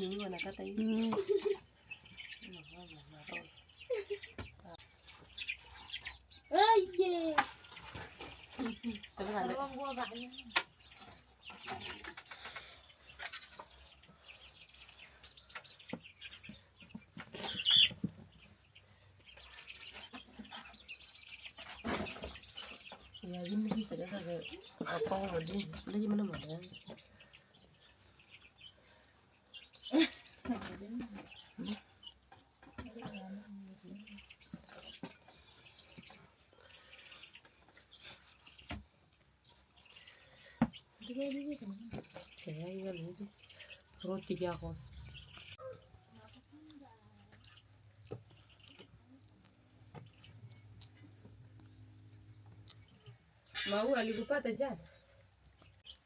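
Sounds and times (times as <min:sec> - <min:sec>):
chickens chirping: 0:00.0 - 0:56.0.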